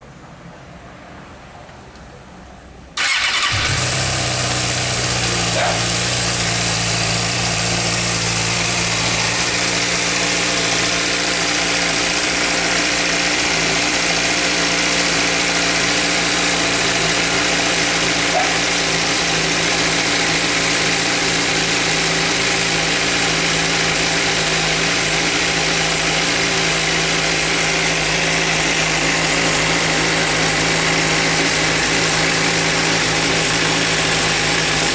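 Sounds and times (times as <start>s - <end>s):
engine idling with ticking: 3.0s - 34.9s
motorcycle engine starting: 3.0s - 34.9s.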